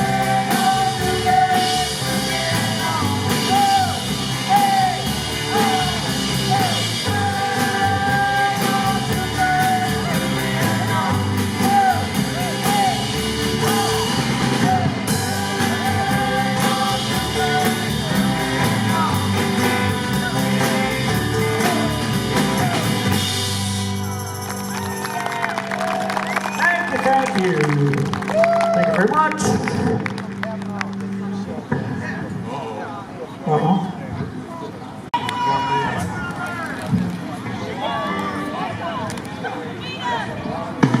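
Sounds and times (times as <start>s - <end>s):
person singing: 0.0s - 23.2s
drum kit cymbal beat: 0.0s - 24.7s
rock band playing: 0.0s - 31.2s.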